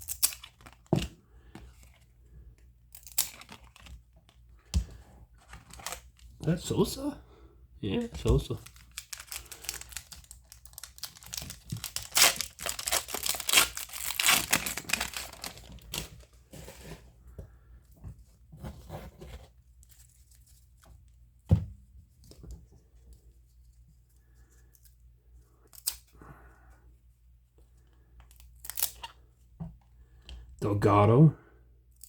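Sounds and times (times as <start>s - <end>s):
card pack wrapper crinkling: 0.0s - 1.0s, 3.0s - 4.0s, 5.5s - 6.7s, 8.2s - 16.4s.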